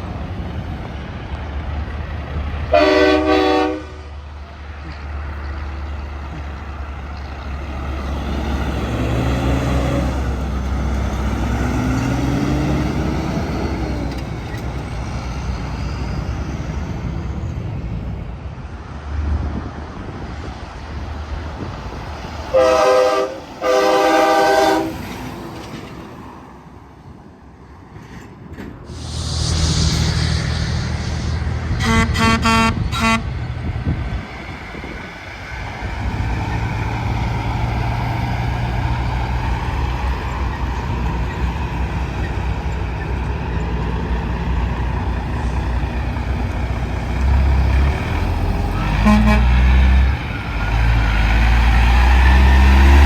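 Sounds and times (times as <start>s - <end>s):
trucks passing on highway: 0.0s - 53.0s
truck air horn blasts: 2.7s - 4.2s, 22.5s - 25.0s, 31.7s - 33.3s, 48.9s - 49.6s.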